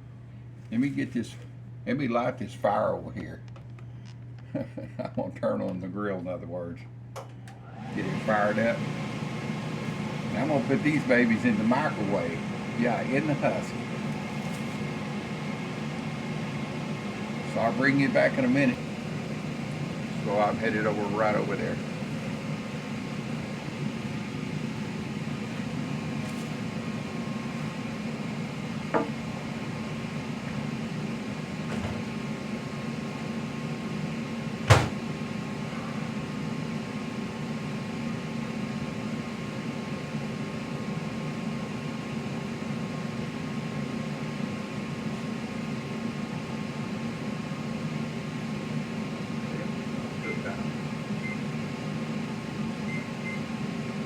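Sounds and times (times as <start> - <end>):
kitchen appliance hum: 0.0 - 54.0
microwave door shutting: 34.6 - 35.2.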